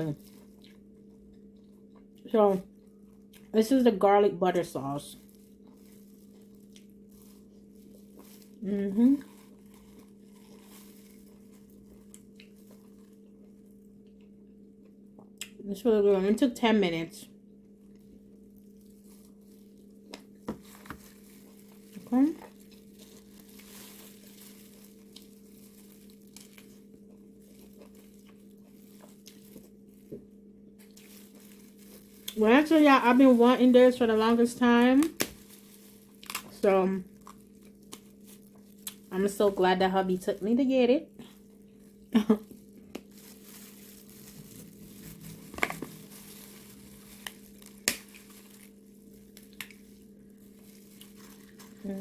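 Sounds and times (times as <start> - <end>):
chewing and handling food: 0.0 - 3.8, 4.5 - 15.6, 17.3 - 52.0
steady low hum: 0.0 - 52.0
wet chewing and lip smacks: 12.0 - 13.4.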